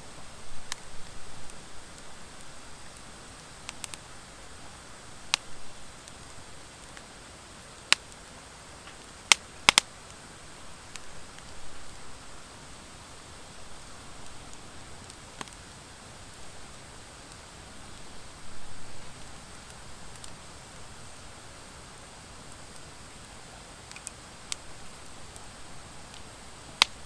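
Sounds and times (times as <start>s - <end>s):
fire hissing: 0.0s - 27.0s
wood crackling pops: 0.6s - 4.1s, 5.3s - 7.1s, 7.8s - 10.2s, 14.2s - 15.8s, 22.0s - 27.0s.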